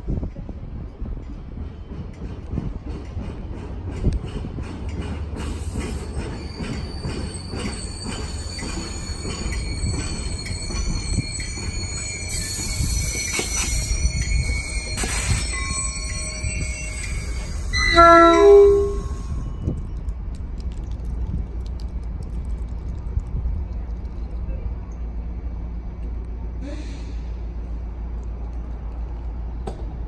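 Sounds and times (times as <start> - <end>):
train rumbling: 0.0 - 30.0
wheel squeal: 5.6 - 19.4
train horn blast: 17.8 - 19.2.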